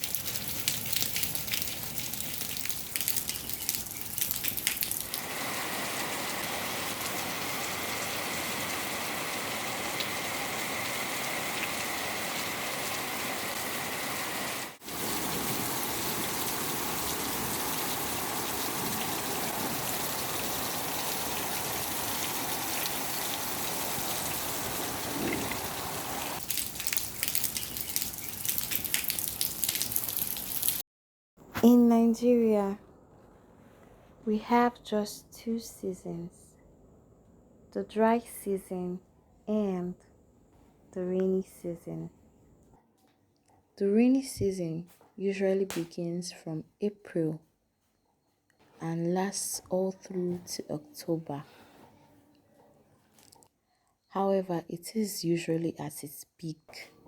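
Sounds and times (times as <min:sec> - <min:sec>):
patter of drops and drips: 0:00.0 - 0:05.3, 0:14.8 - 0:30.8, 0:53.2 - 0:53.5
rain hissing: 0:00.0 - 0:30.8.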